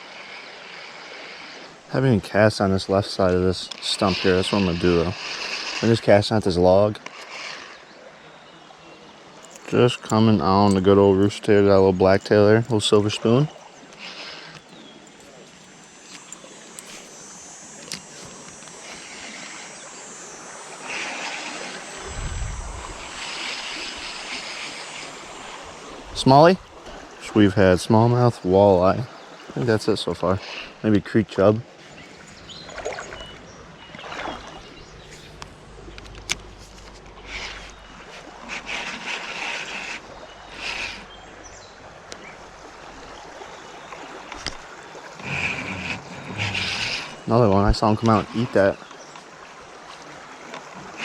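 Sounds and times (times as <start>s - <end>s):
creek water rushing: 0.0s - 51.0s
short hissing bursts: 15.7s - 26.0s
wind rumble on microphone: 22.0s - 24.2s.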